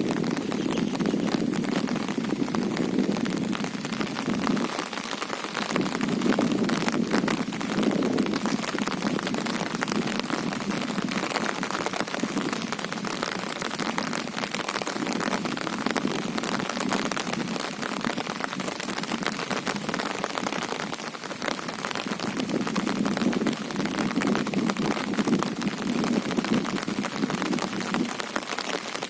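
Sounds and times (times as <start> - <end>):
heavy rain on a river: 0.0 - 29.0.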